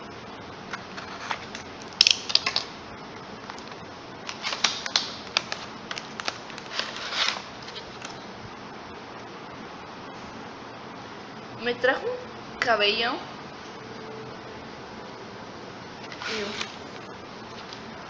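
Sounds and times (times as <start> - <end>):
packaging sharp clicks: 0.7 - 2.7, 3.4 - 8.2
packaging crinkling: 0.7 - 8.3, 16.1 - 17.8.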